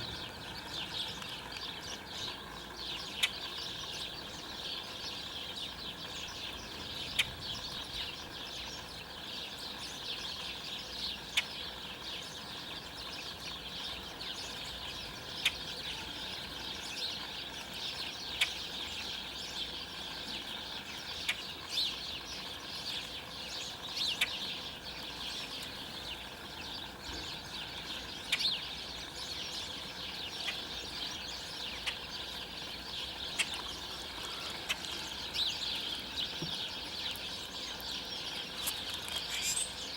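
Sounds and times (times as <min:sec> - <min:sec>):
flock of songbirds chattering: 0:00.0 - 0:39.9.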